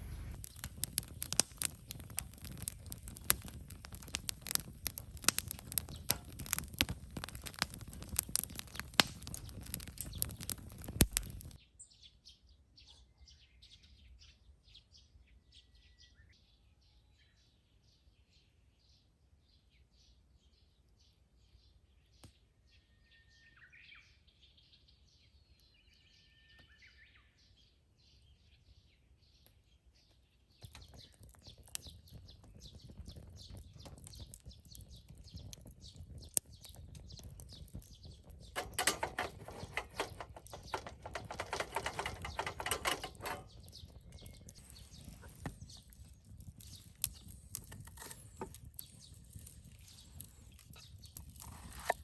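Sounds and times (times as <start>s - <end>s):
small clicks: 0.3s - 11.6s, 38.6s - 52.0s
rustling: 38.6s - 52.0s.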